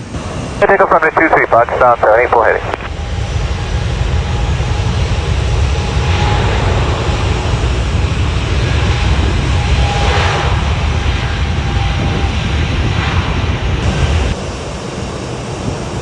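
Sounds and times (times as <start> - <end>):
jet engine roar: 0.0 - 16.0
faint steady whine: 0.2 - 3.0.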